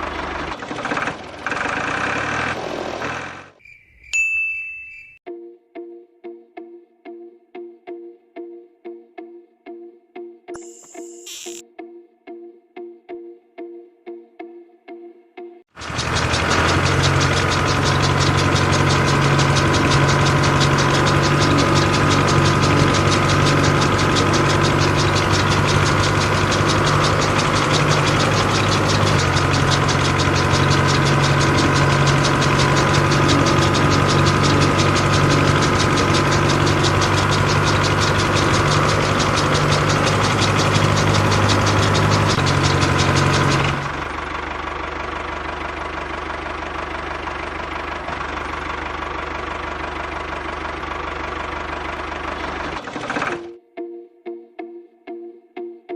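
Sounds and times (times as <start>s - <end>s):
small electric motor buzzing: 10.6s - 11.6s.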